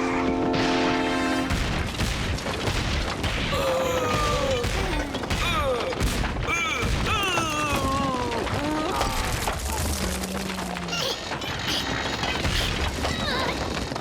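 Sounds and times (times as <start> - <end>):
long rumbling crash: 0.0 - 11.0.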